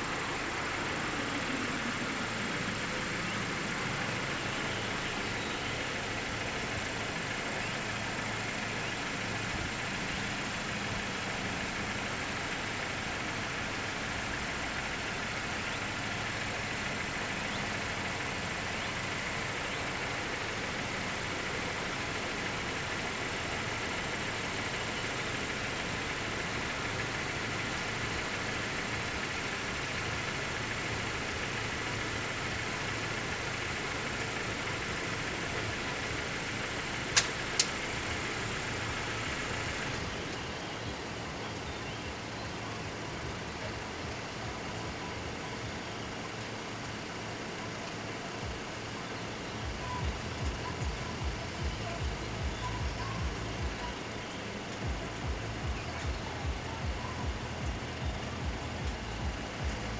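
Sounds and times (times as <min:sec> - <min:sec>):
engine idling: 0:00.0 - 0:59.9
sharp clicks: 0:37.0 - 0:37.9.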